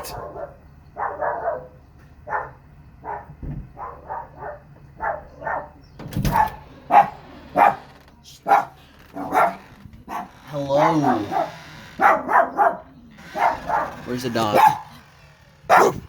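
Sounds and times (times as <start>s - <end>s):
dog barking: 0.0s - 7.8s, 8.4s - 15.0s, 15.7s - 16.0s
heavy thump: 3.3s - 3.8s.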